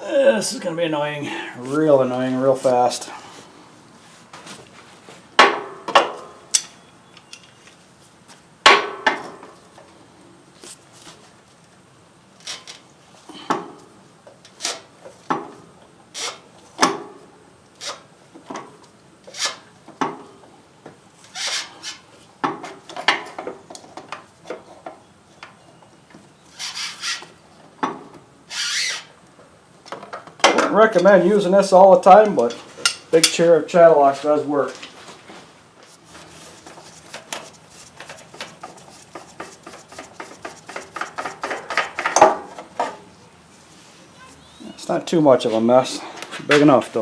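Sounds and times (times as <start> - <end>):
sharp knocks and clicks: 36.6 - 42.7.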